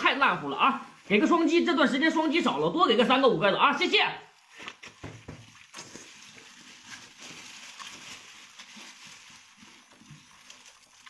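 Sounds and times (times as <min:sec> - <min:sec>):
person chewing and slurping: 0:04.4 - 0:11.0.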